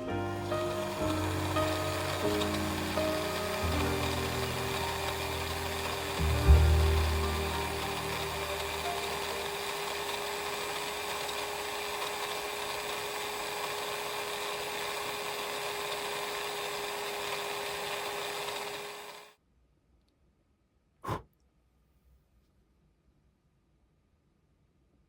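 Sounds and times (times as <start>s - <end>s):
laser engraver humming and whining: 0.4s - 19.3s.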